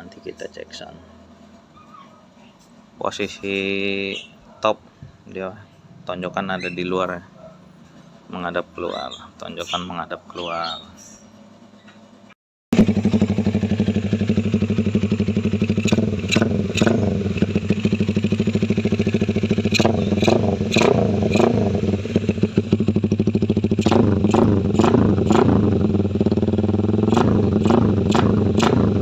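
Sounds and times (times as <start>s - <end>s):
motorcycle engine throttle blips: 12.8s - 29.0s.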